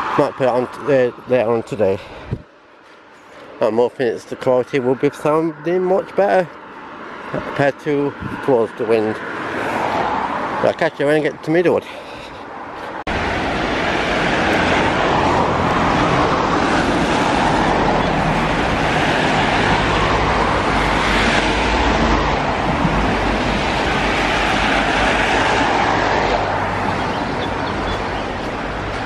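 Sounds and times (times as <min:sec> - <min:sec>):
traffic on wet road: 0:00.0 - 0:29.0
wind buffeting microphone: 0:01.2 - 0:02.5, 0:08.1 - 0:08.6, 0:12.5 - 0:29.0.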